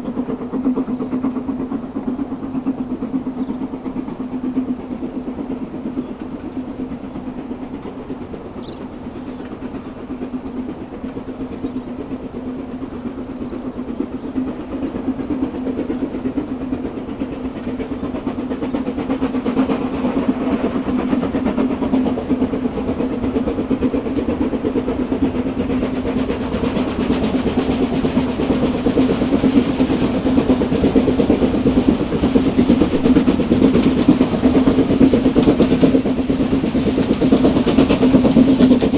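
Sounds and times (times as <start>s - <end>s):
steam train approaching: 0.0s - 38.9s
steady low hum: 31.9s - 35.5s.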